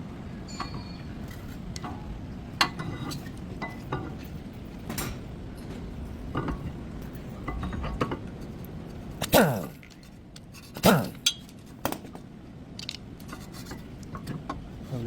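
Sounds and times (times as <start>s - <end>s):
steady low rumble: 0.0s - 15.0s
metal tools clinking: 0.4s - 8.6s.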